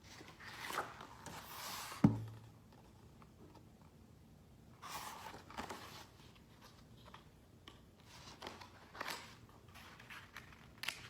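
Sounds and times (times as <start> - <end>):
paper pages rustling: 8.0 - 11.0.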